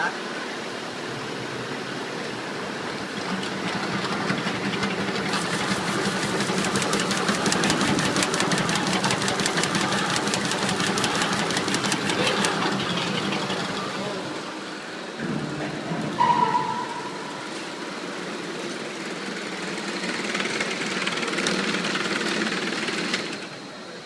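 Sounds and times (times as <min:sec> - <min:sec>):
labelling machine hum: 0:00.0 - 0:24.0
rapid even clicking: 0:03.0 - 0:14.0.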